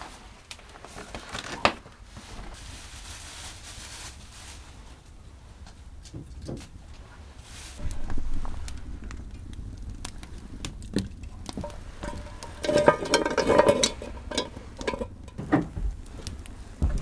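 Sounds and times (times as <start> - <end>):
scraping clatter: 7.6 - 17.0
objects clicking and knocking: 7.8 - 17.0.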